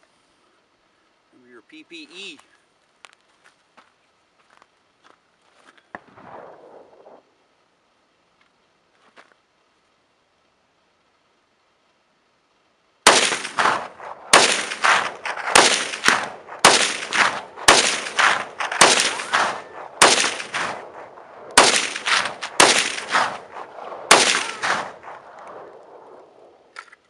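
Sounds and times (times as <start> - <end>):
rifle shots with echo: 13.0 - 26.7.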